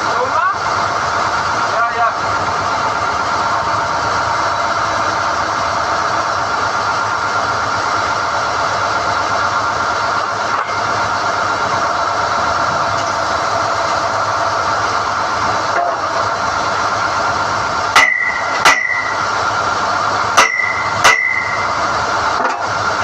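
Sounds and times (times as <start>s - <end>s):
drilling rig droning: 0.0s - 23.0s
sharp metallic clank: 17.9s - 19.2s, 20.3s - 21.8s.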